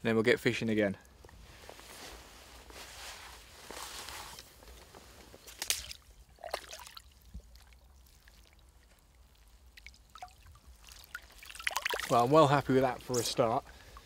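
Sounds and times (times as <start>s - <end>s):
water splashing and trickling: 5.4s - 14.0s.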